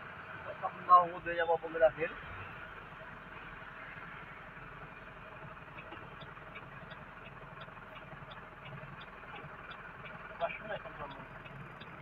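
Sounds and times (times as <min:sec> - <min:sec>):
car engine idling: 0:00.0 - 0:12.0
turn signal ticking: 0:02.6 - 0:12.0.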